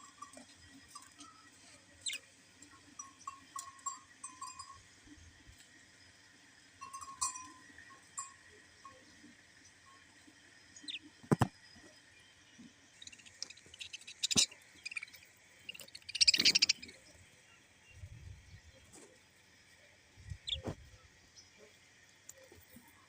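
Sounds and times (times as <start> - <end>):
parrot chirps: 13.0 - 17.0.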